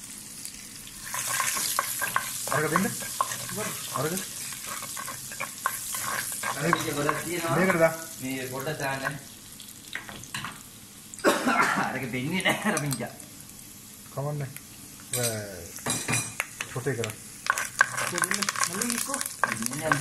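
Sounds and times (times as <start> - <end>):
food sizzling in a pan: 0.0 - 20.0
utensil scraping a pan: 1.0 - 8.0, 17.4 - 20.0.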